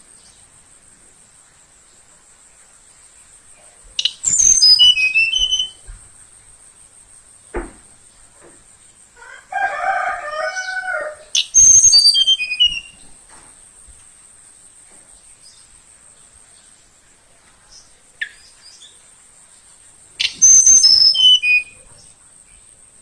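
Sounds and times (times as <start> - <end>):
songbird warbling: 4.0 - 5.8, 11.3 - 13.0, 20.2 - 22.2
songbird whistling: 4.0 - 5.9, 11.4 - 13.0, 20.2 - 21.9.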